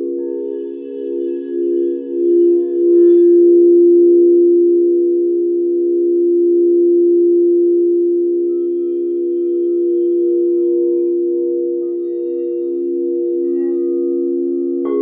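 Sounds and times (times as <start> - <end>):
singing bowls sustained chord: 0.0 - 15.0
faint high ringing: 6.3 - 15.0.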